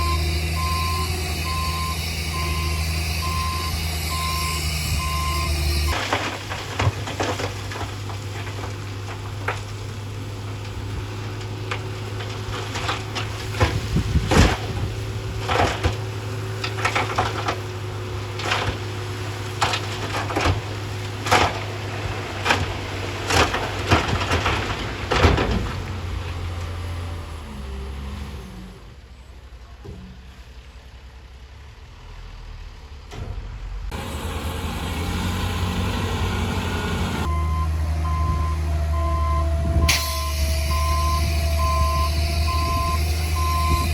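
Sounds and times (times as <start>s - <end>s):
heavy diesel engine running: 0.0s - 43.9s
sharp knocks and cracks: 5.9s - 9.9s, 10.5s - 26.0s.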